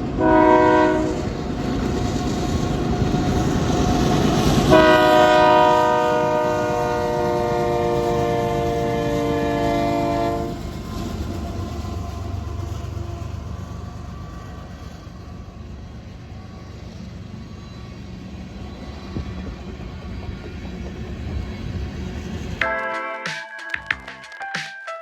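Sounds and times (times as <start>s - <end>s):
low rumble of passing train: 0.0s - 22.7s
train horn chord: 0.2s - 1.3s, 4.6s - 10.6s, 22.6s - 23.3s.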